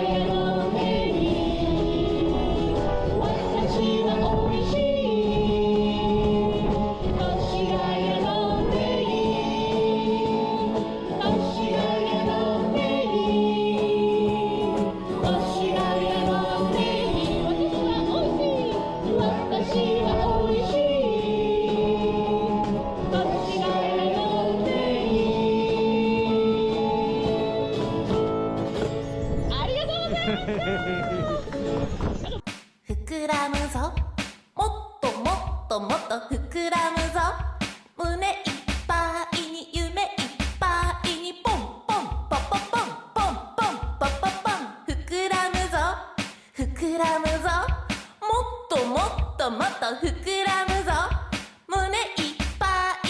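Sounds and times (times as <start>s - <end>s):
voices singing in harmony: 0.0s - 28.2s.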